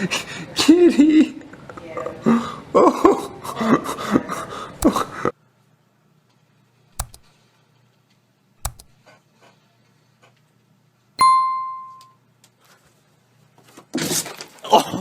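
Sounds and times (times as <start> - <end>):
faint clicks: 7.0 - 7.3, 8.6 - 8.9
sharp knocks: 7.0 - 7.3, 8.6 - 8.9
bright bell ding: 11.2 - 12.2.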